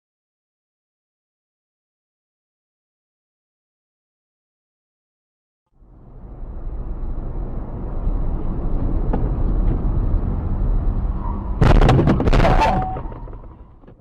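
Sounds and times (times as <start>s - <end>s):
car driving rumble: 5.7s - 14.0s
loud crash: 11.6s - 13.8s.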